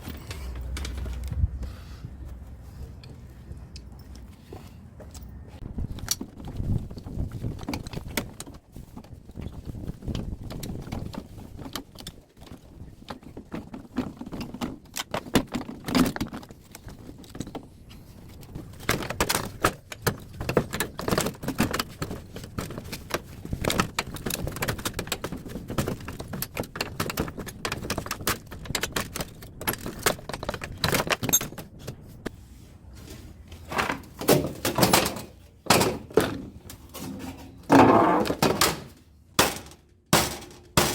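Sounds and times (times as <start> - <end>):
metal parts clanking: 0.0 - 1.4, 23.6 - 32.0, 33.6 - 40.9.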